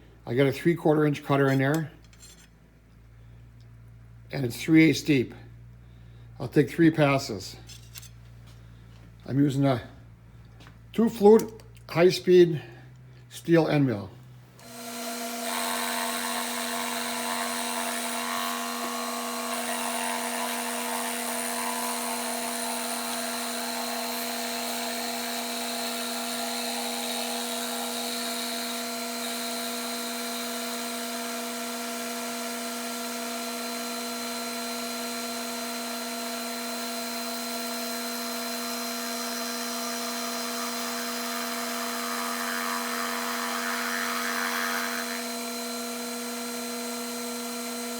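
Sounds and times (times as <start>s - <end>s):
milling machine whine: 14.6s - 31.7s, 35.1s - 47.9s.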